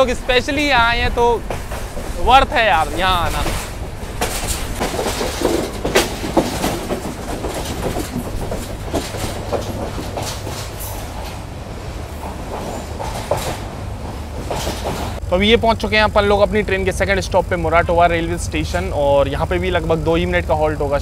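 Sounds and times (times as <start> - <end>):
wheels clacking over rail joints: 0.0 - 15.2
train rumbling: 0.0 - 21.0
scattered knocks: 1.4 - 11.4, 14.4 - 15.2.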